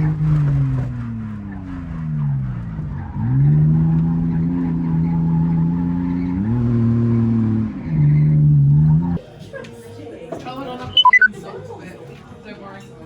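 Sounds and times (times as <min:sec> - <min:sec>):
car engine at high revs: 0:00.0 - 0:09.2.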